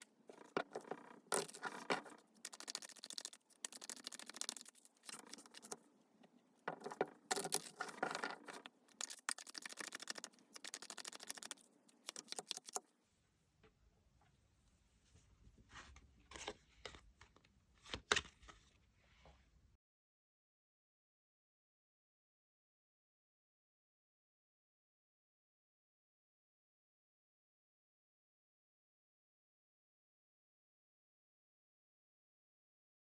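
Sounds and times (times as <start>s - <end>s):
cards being shuffled: 0.3s - 5.8s, 6.7s - 12.8s.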